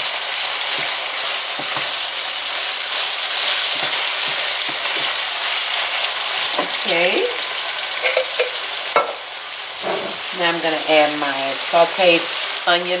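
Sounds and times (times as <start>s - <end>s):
meat and vegetables sizzling in skillet: 0.0s - 13.0s
wooden spoon stirring and scraping: 0.7s - 6.8s, 9.8s - 10.3s.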